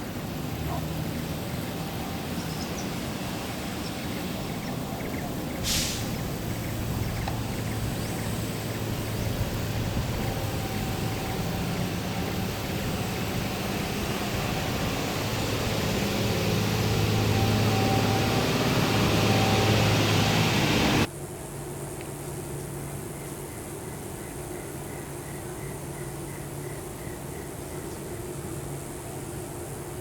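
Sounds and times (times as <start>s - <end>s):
engine running with rushing noise: 0.0s - 21.1s.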